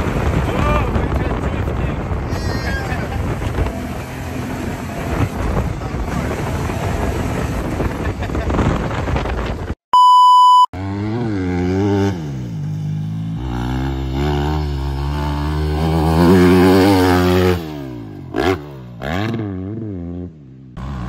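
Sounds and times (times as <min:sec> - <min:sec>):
dirt bike engine revving: 0:02.7 - 0:08.7, 0:10.8 - 0:21.0
short steady beep: 0:09.9 - 0:10.7.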